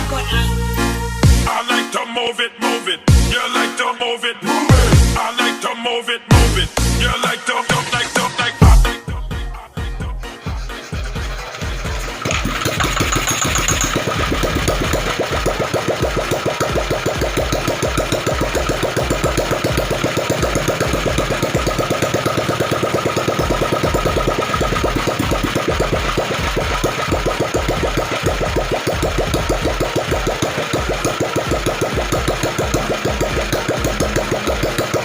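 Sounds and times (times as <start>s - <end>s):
stationary engine running: 10.5s - 35.0s.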